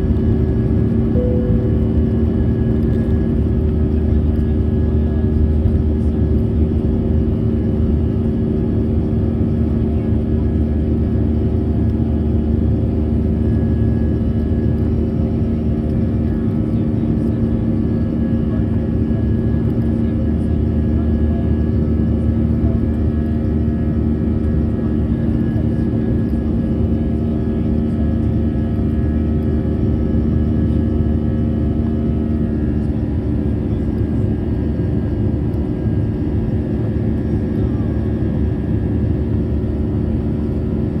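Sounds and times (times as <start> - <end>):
jet engine and airflow roar: 0.0 - 41.0
steady droning hum: 1.2 - 5.0.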